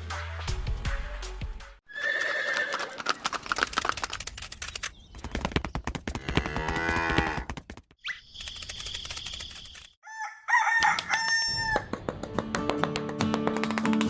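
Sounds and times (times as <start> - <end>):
horse neighing: 1.9 - 3.1
hooves clip-clopping: 2.0 - 7.9, 10.9 - 14.0.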